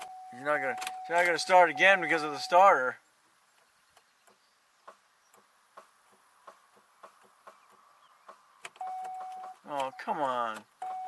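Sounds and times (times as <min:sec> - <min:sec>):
electronic warning chime: 0:00.0 - 0:02.5, 0:08.8 - 0:11.0
light ticking inside car: 0:04.0 - 0:11.0.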